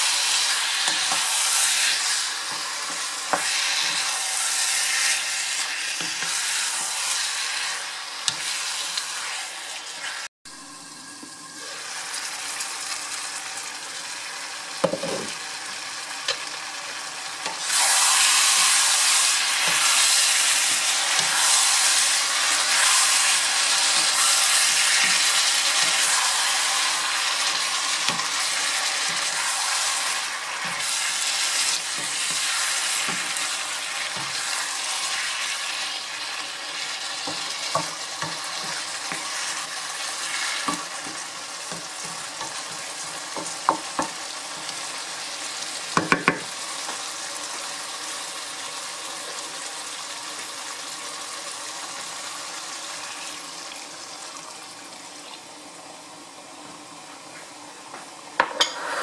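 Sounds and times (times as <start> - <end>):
food sizzling in a frying pan: 0.0 - 59.0
spatula knocking against pan: 46.0 - 46.5.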